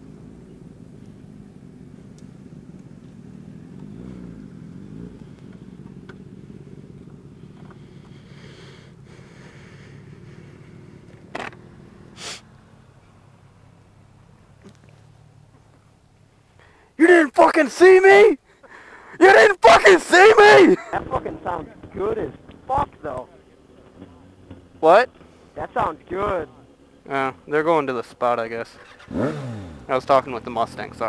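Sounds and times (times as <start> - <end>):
motorcycle engine revving: 0.0 - 16.2, 20.7 - 31.0
motorcycle engines idling: 0.0 - 31.0.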